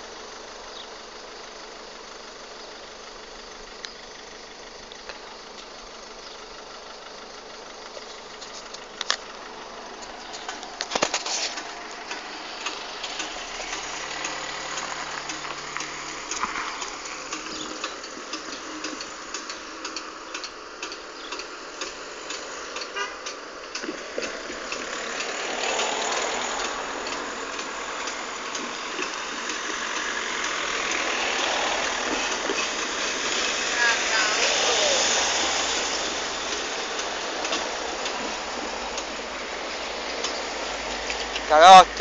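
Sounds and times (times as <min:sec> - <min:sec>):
vehicle approaching: 0:00.0 - 0:42.0
vehicles idling: 0:00.0 - 0:42.0
light irregular ticks: 0:10.0 - 0:31.1.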